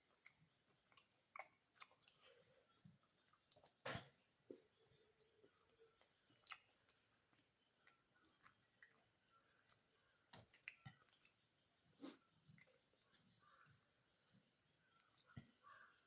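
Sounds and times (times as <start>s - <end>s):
mouth clicks of chewing: 0.1s - 2.3s, 3.0s - 4.6s, 5.2s - 13.4s.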